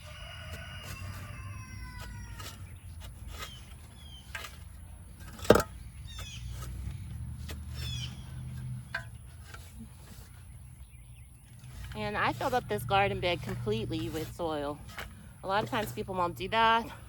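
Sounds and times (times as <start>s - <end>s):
rooster crowing: 0.0s - 2.7s
shovel digging and scraping soil: 0.0s - 17.0s
small birds chirping: 0.0s - 17.0s.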